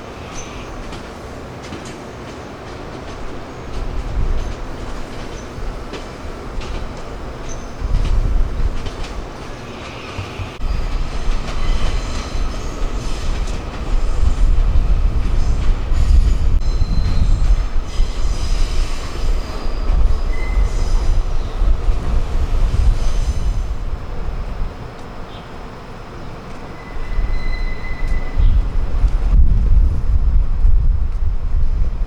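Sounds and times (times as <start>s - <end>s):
train rumbling on rails: 0.0s - 32.0s
wheel squeals: 26.7s - 28.6s.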